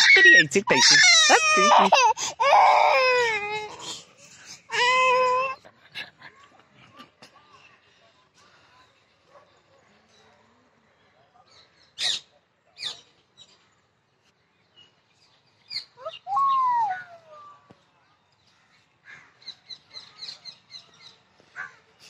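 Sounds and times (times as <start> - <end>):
birds chirping: 14.3 - 17.7
bird call rising and falling: 15.7 - 17.2.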